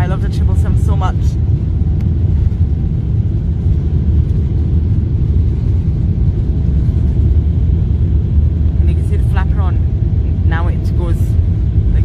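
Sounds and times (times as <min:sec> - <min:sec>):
airliner takeoff rumble in cabin: 0:00.0 - 0:12.0.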